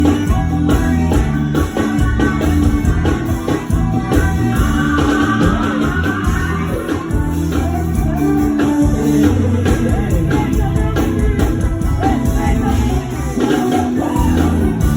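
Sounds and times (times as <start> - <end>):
bass: 0.0 - 14.9
drums: 0.0 - 14.9
keyboard: 0.0 - 14.9.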